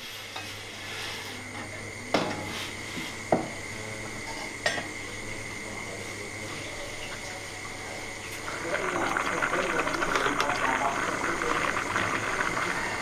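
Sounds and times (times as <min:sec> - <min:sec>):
steady background hum: 0:00.0 - 0:13.0
dishes clinking: 0:04.2 - 0:05.0.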